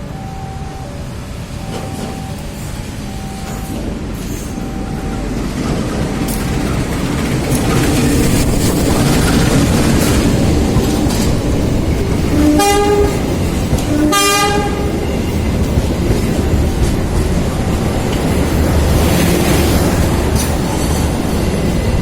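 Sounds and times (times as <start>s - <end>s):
train wheels clattering on rail: 1.5s - 22.0s
train horn blasts: 12.3s - 15.0s.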